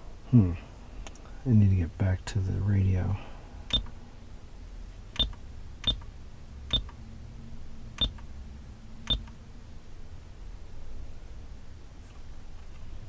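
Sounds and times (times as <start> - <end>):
car radio button beeps: 5.2 - 6.0, 6.7 - 6.9, 8.0 - 8.2, 9.1 - 9.3.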